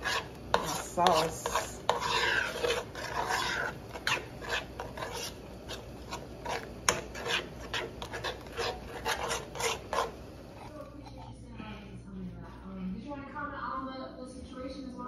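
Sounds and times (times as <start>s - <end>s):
utensil scraping cooking pot: 0.0s - 11.4s.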